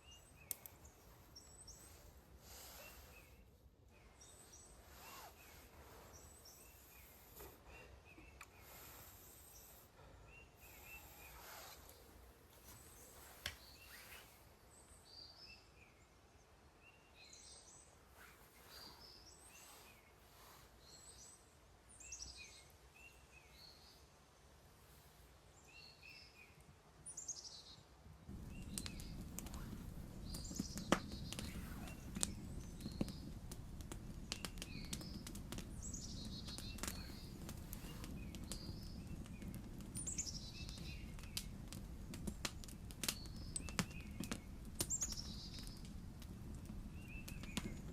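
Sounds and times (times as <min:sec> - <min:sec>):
small birds chirping: 0:00.0 - 0:47.9
sharp crackles and clicks: 0:00.4 - 0:02.0, 0:28.3 - 0:47.9
steady low rumble: 0:28.3 - 0:34.3.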